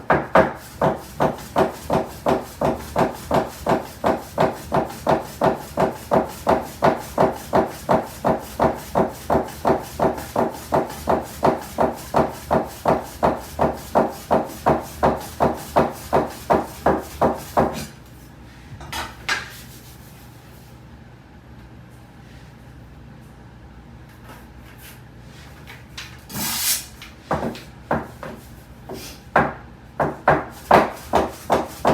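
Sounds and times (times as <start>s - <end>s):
knife chopping dough on wooden board: 0.0s - 18.0s, 27.3s - 31.9s.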